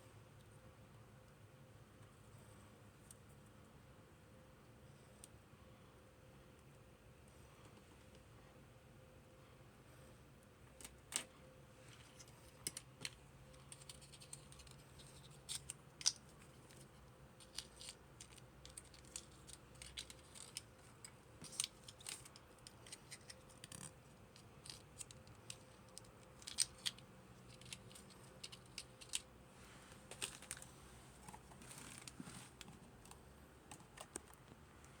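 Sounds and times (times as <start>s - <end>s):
toy packaging clicks and snips: 12.5s - 29.3s, 30.1s - 30.7s.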